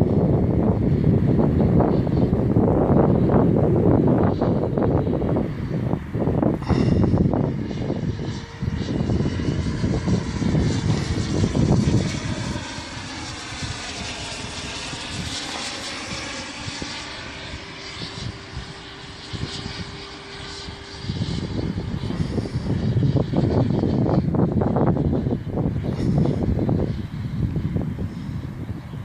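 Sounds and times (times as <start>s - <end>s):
electric ducted fan whine: 0.0s - 29.0s
wind buffeting microphone: 0.0s - 29.0s.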